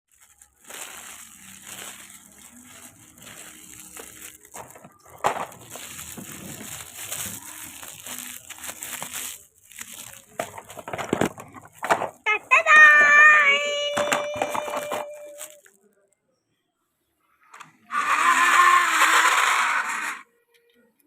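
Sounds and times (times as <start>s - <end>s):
rustling crinkling handling: 0.1s - 15.9s.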